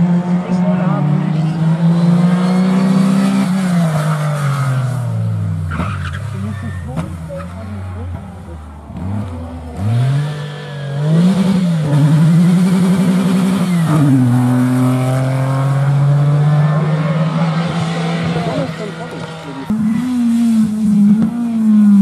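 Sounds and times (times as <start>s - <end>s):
rally car engine accelerating: 0.0s - 22.0s.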